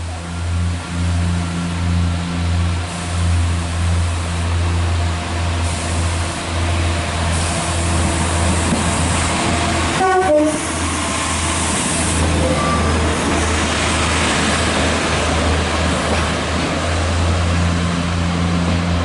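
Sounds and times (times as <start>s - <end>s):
train rumbling: 0.0s - 19.0s
two-note train horn: 10.0s - 10.7s.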